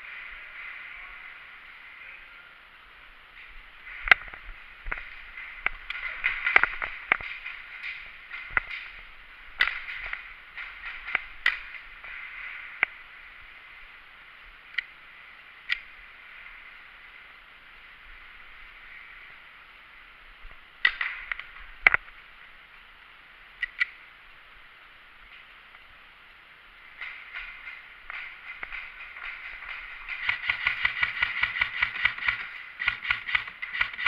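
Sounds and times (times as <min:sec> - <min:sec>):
airsoft gun shots: 0:27.0 - 0:34.0.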